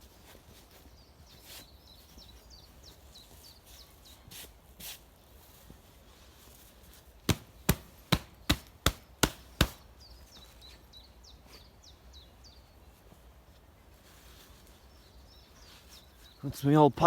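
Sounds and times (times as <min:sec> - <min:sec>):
sharp knocks: 0:07.3 - 0:09.8.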